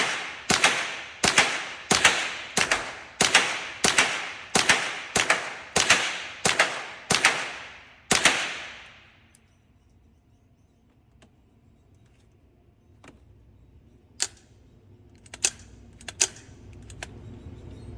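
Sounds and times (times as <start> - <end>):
gunshots with short echo: 0.0 - 9.0.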